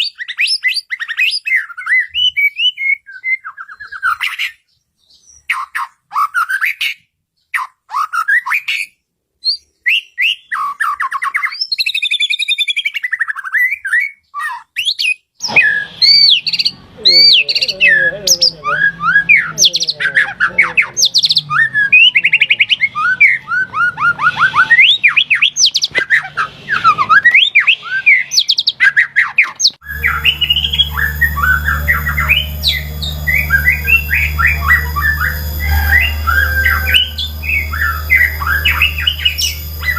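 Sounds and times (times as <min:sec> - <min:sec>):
songbird singing: 0:15.4 - 0:26.1, 0:26.8 - 0:39.9
steady low hum: 0:29.8 - 0:39.9.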